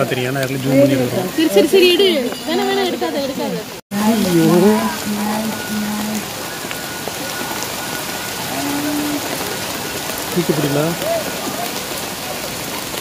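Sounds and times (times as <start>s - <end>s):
person's voice: 0.0s - 6.3s, 8.5s - 9.4s
heavy rain pouring: 0.0s - 13.0s.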